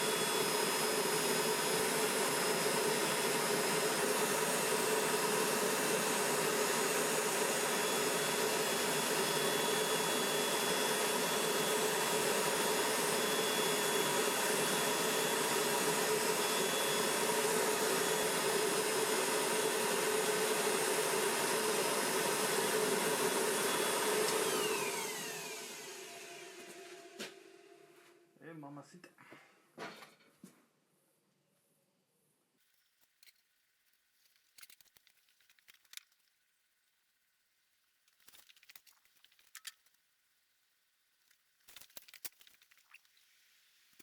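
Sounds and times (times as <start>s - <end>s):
electric blower motor whirring: 0.0s - 27.9s.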